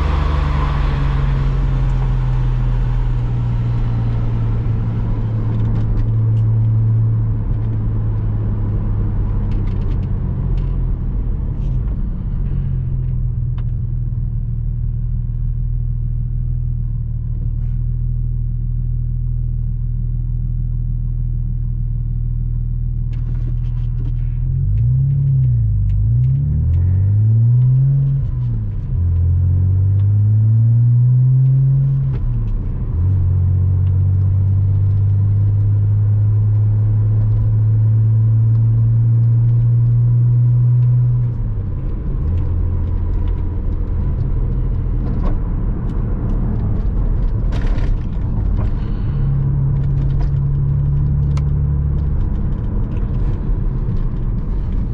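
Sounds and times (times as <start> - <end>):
car engine running: 31.8 - 54.9.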